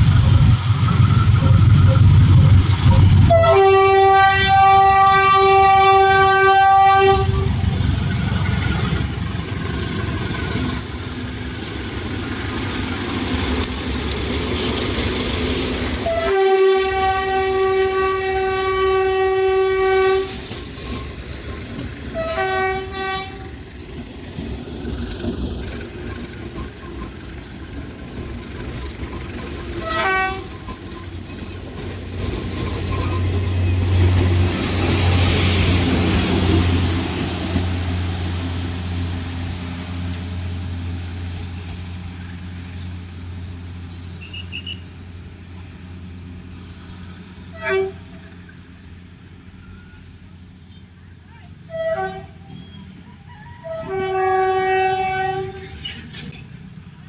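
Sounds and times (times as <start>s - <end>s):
locomotive low rumble: 0.0s - 57.0s
locomotive horn blasts: 3.3s - 7.6s, 16.0s - 20.4s, 22.2s - 23.5s, 29.8s - 30.6s, 44.2s - 44.8s, 47.5s - 48.2s, 51.7s - 52.6s, 53.4s - 55.8s.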